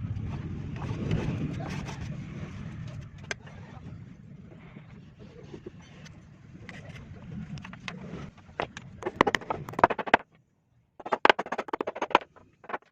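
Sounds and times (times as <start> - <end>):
rapid sharp knocks: 9.0 - 10.2, 11.0 - 12.9.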